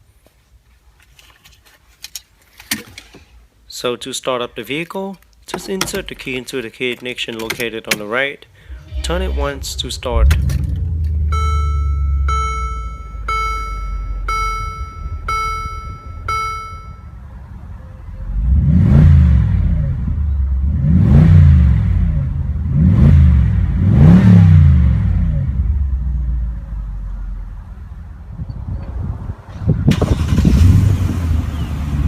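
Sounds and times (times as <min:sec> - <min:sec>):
car engine idling and revving: 0:08.7 - 0:32.0
dashboard warning chime: 0:11.3 - 0:17.2.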